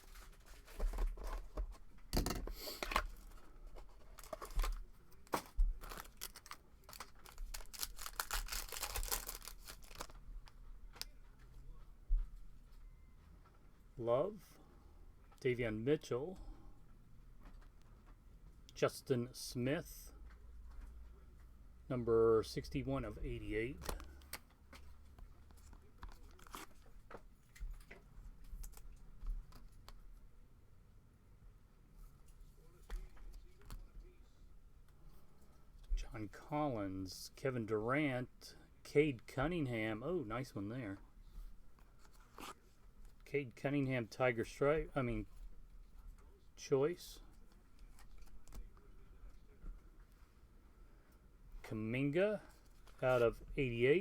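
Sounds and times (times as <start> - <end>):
plastic wrapping crinkling: 3.1 - 10.2.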